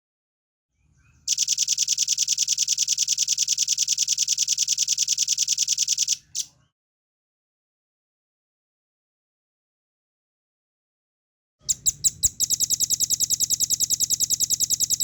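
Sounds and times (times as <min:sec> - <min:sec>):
bird singing rapid trill: 0:11.7 - 0:15.0.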